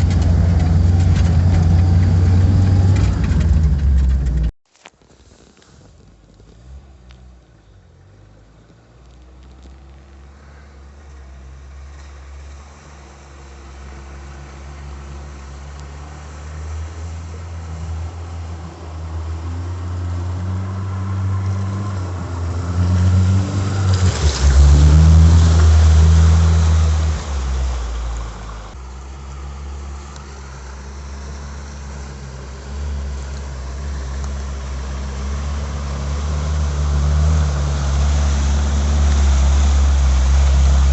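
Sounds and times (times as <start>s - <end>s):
car engine running: 0.0s - 4.5s, 27.2s - 40.9s
rushing noise: 36.6s - 40.9s.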